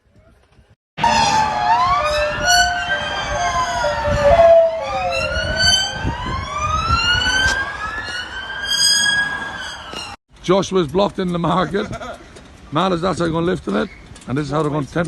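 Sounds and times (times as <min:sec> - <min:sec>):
emergency sirens wailing: 0:01.0 - 0:10.2
lower siren tone stepping down: 0:01.0 - 0:10.2
low traffic rumble: 0:01.0 - 0:15.0.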